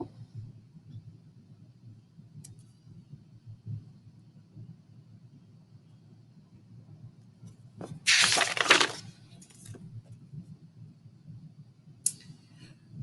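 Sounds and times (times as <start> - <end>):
book pages rustling: 8.1 - 9.1.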